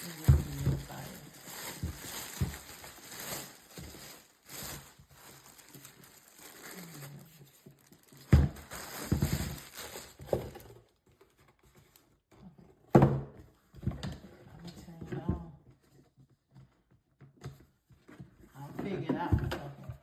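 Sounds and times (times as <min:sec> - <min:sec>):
packaging rustling and crinkling: 0:00.0 - 0:12.2.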